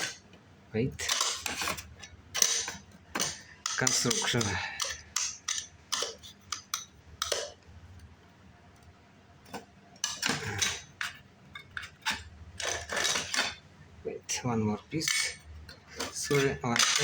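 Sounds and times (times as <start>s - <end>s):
small parts clicking and clinking: 2.4s - 7.5s, 15.0s - 17.0s.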